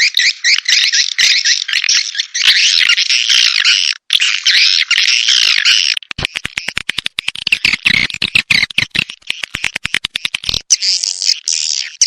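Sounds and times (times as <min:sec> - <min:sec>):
sharp clicks: 0:06.0 - 0:10.7
swiftlet chirps: 0:06.1 - 0:10.6.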